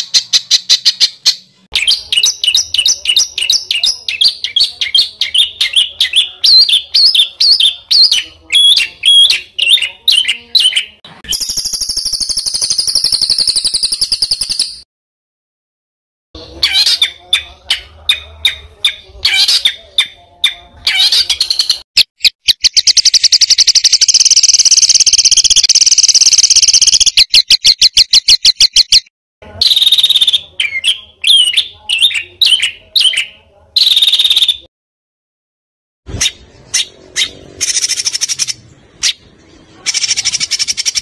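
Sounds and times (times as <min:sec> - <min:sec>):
fast even bird trill: 0:00.0 - 0:14.8, 0:20.9 - 0:34.6, 0:36.2 - 0:39.2, 0:39.8 - 0:41.0
songbird singing: 0:00.0 - 0:14.8, 0:16.4 - 0:34.7, 0:36.2 - 0:41.0.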